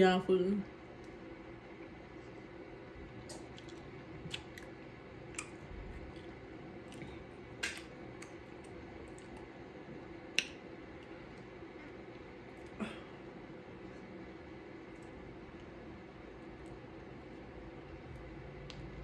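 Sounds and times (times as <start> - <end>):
faint steady hum: 0.0 - 19.0
person chewing: 3.2 - 9.5
wet mouth clicks and smacks: 3.3 - 4.7.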